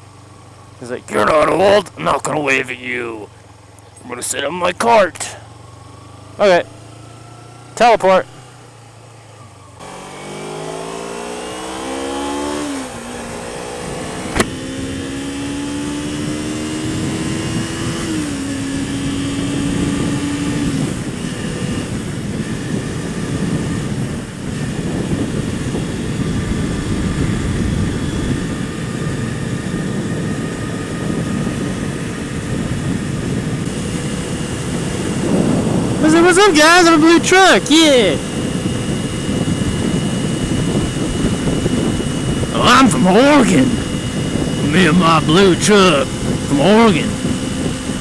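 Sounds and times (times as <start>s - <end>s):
motorcycle engine accelerating: 0.0s - 48.0s
wind rush on microphone: 10.7s - 48.0s
sharp click: 14.3s - 14.6s.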